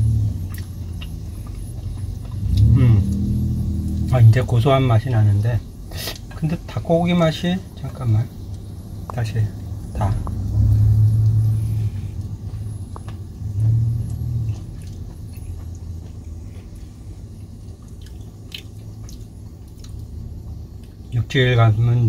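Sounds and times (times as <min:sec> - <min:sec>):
low rumble: 0:00.0 - 0:05.9, 0:07.6 - 0:22.0
person chewing: 0:00.4 - 0:04.1, 0:10.2 - 0:20.2.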